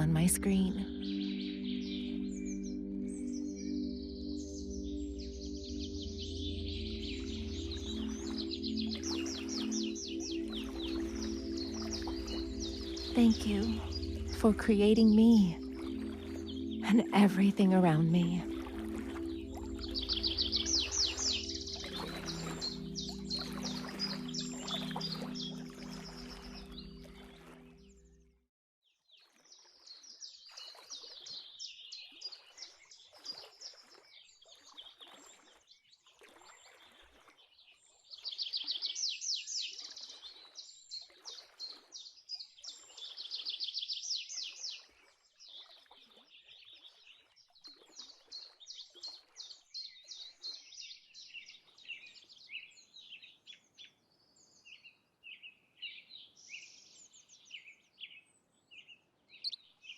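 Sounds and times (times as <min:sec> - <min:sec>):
birds chirping and trilling: 0:00.0 - 0:28.2, 0:55.8 - 0:59.9.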